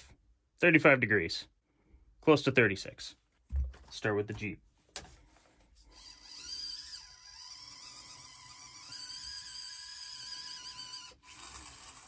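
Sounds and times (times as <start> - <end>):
toy car motor whine: 5.9 - 12.0.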